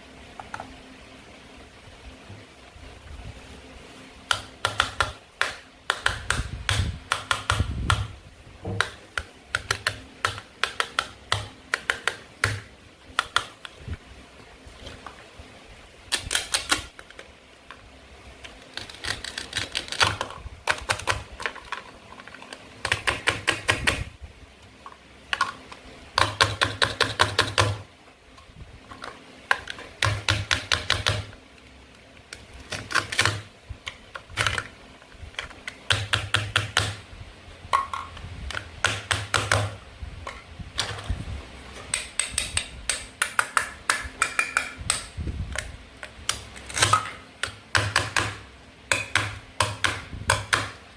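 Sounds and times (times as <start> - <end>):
toy knife cutting play food: 16.1 - 17.2, 18.5 - 24.0.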